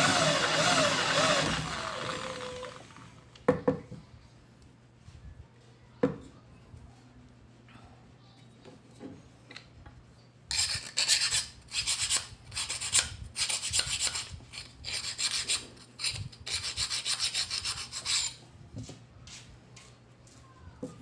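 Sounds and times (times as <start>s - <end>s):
rasping scraping strokes by hand: 10.5s - 18.4s.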